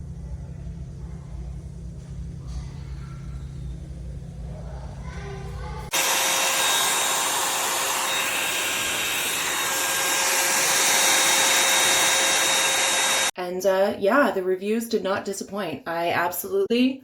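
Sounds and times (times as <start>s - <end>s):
hair dryer fan rushing: 5.9s - 13.4s.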